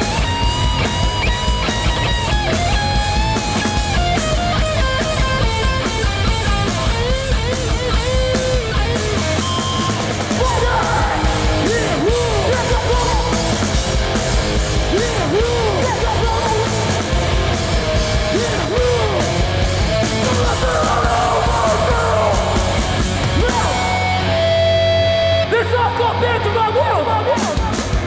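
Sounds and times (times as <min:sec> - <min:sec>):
pounding drums: 0:00.0 - 0:24.4
distorted electric guitars: 0:00.0 - 0:28.0
person shouting: 0:10.4 - 0:13.5, 0:14.9 - 0:16.9, 0:18.3 - 0:19.4, 0:20.2 - 0:24.0.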